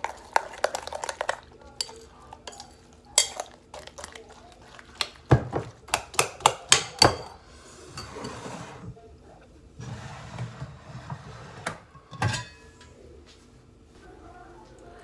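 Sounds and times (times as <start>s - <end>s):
stirring mixture in bowl: 0.0s - 8.1s.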